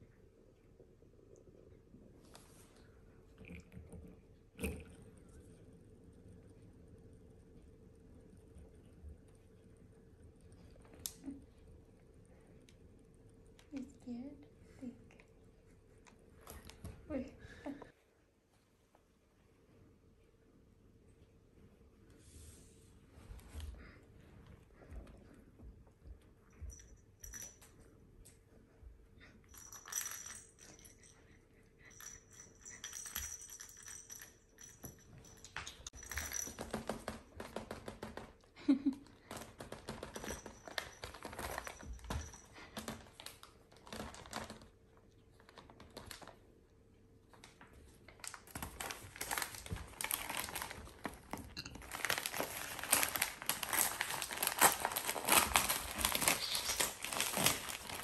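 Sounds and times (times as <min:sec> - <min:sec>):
wrapping material crinkling: 0:48.1 - 0:58.0.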